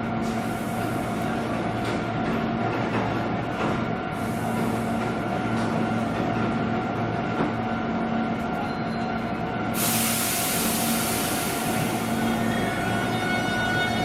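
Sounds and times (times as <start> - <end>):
train electrical hum: 0.0 - 14.0
loud hiss: 9.8 - 13.1.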